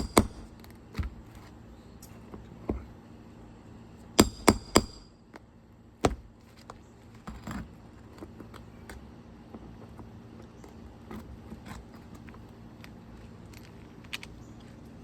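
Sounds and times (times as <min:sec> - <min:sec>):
hammer striking metal: 0:04.2 - 0:05.1.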